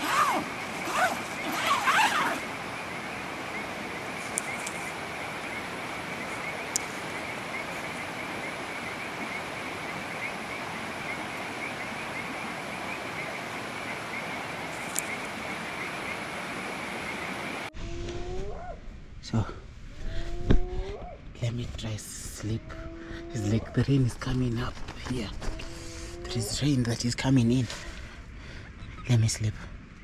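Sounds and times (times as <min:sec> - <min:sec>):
rain hissing: 0:00.0 - 0:17.7.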